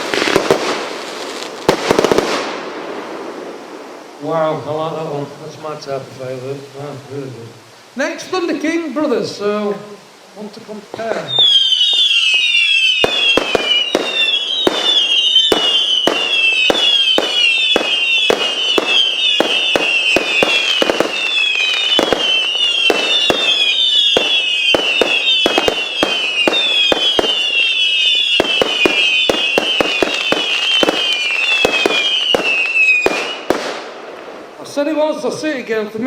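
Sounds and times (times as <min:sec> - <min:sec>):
firework cracks and bangs: 0:00.0 - 0:04.1, 0:10.9 - 0:34.8
firework whistles falling in pitch: 0:11.0 - 0:34.0.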